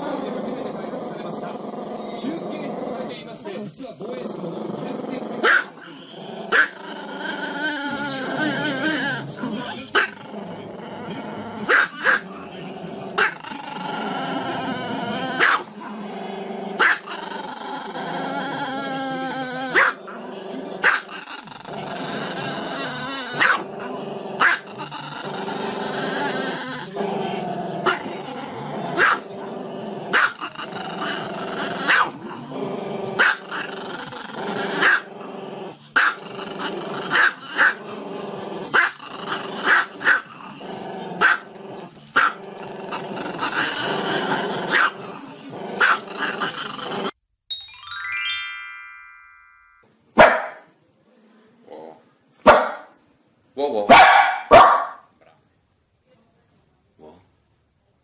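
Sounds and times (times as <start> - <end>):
dog growling: 0.0 - 47.2, 51.6 - 52.1, 57.0 - 57.3
small dog barking: 5.4 - 5.8, 11.7 - 12.2, 15.4 - 15.6, 16.8 - 17.1, 19.8 - 20.0, 23.4 - 23.6, 24.4 - 24.6, 29.0 - 29.3, 30.1 - 30.4, 31.9 - 32.2, 33.2 - 33.4, 34.8 - 35.1, 36.0 - 36.2, 37.1 - 37.8, 38.8 - 39.0, 39.6 - 40.3, 41.2 - 41.5, 42.2 - 42.4, 44.7 - 45.0, 45.8 - 46.0, 50.2 - 50.7, 52.4 - 53.0, 53.9 - 55.1.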